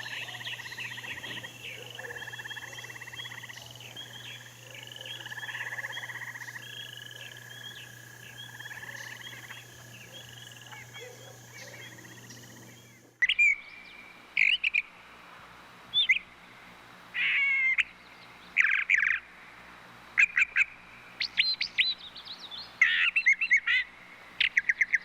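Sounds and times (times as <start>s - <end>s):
steady animal sound: 0.0s - 13.1s
bird chirps and trills: 0.0s - 14.9s.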